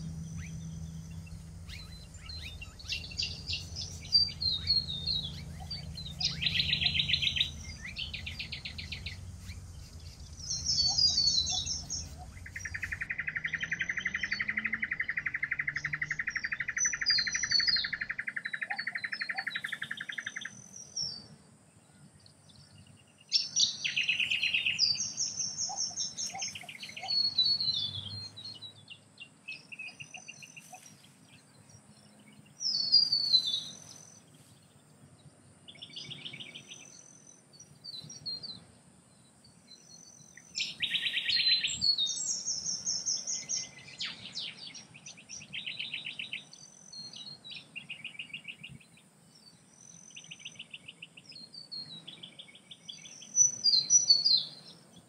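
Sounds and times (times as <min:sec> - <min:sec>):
faint low background hum: 0:00.0 - 0:55.0
small birds chirping and trilling: 0:00.0 - 0:55.0.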